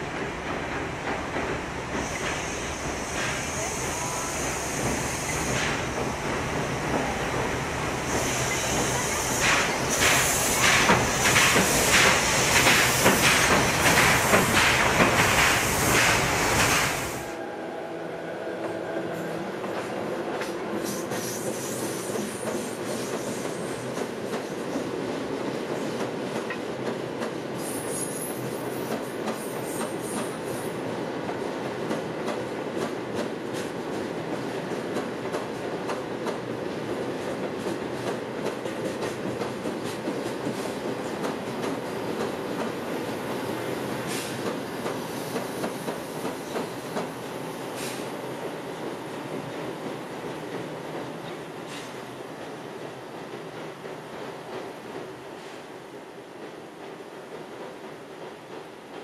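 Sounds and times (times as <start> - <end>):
train wheels clacking over joints: 8.5 - 16.9.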